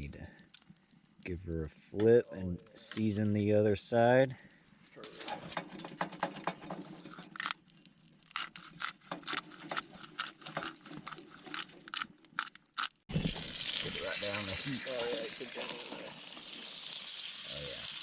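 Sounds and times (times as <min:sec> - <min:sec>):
steak frying in a pan: 0:13.1 - 0:18.0.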